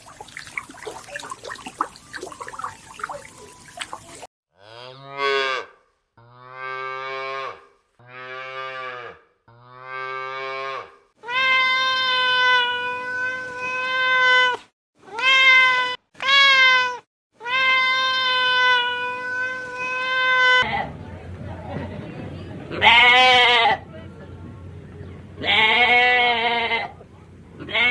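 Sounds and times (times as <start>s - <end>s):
animal calling with drawn-out cries: 0.1s - 4.3s.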